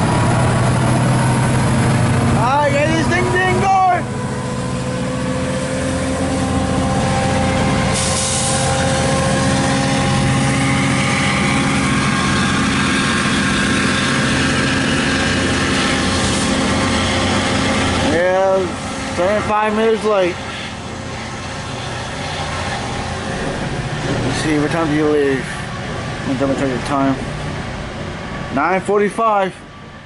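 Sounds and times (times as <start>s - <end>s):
diesel locomotive engine drone: 0.0s - 30.0s
air hiss: 7.9s - 8.7s.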